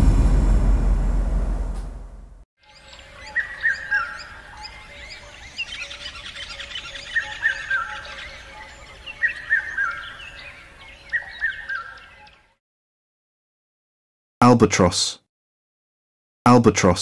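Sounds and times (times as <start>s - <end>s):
small birds twittering: 2.7s - 12.4s.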